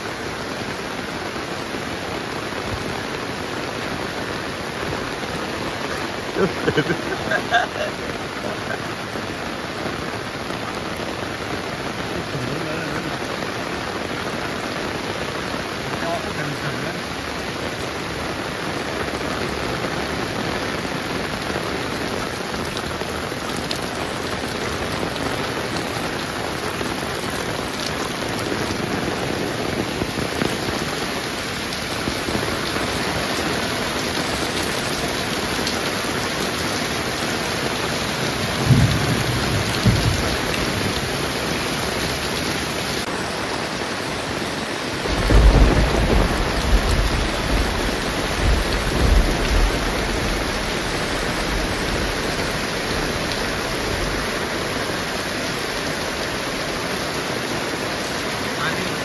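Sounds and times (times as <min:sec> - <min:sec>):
heavy rain falling: 0:00.0 - 0:59.0
low rumbles of thunder: 0:38.4 - 0:41.1, 0:45.1 - 0:52.0.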